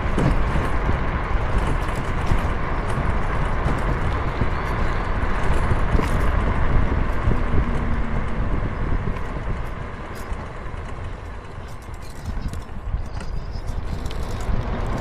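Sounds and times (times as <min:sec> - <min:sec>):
road noise: 0:00.0 - 0:15.0
wind buffeting microphone: 0:00.0 - 0:15.0.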